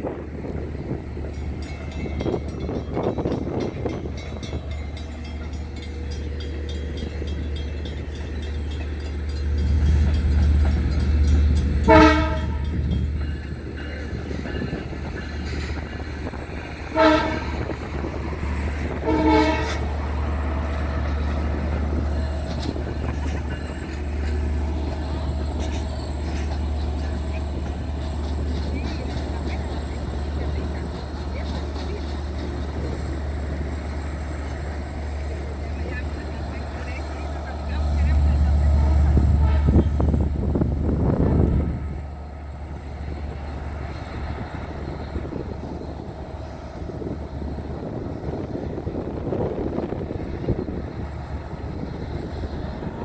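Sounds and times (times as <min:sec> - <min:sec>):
train rumbling: 0:00.0 - 0:53.0
train horn blasts: 0:11.8 - 0:12.9, 0:16.8 - 0:20.0, 0:38.6 - 0:40.4.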